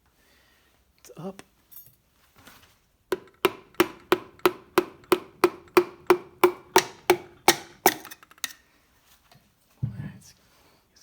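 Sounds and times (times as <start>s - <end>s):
sharp metal taps with ring: 3.2s - 8.0s.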